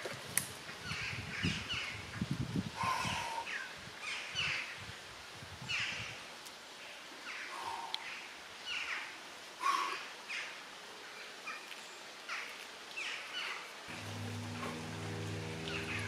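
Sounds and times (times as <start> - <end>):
birds singing: 13.0 - 16.0
steady low hum: 13.9 - 16.0.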